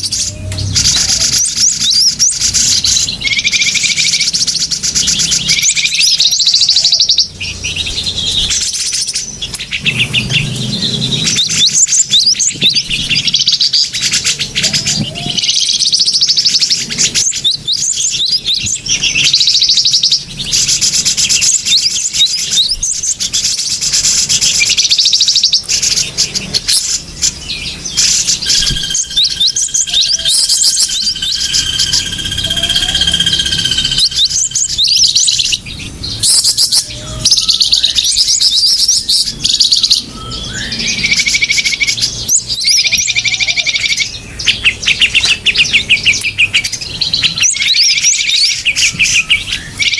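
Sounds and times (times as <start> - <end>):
small birds chirping: 0.0 - 49.9
held whistle: 28.0 - 35.1.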